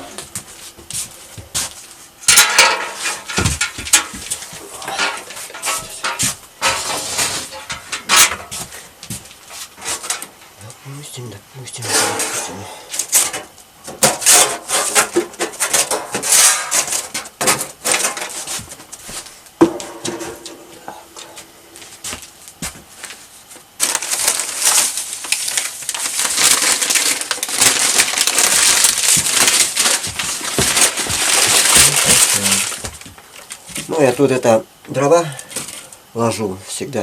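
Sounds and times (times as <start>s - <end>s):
wooden knocks and clatters: 2.6s - 4.4s.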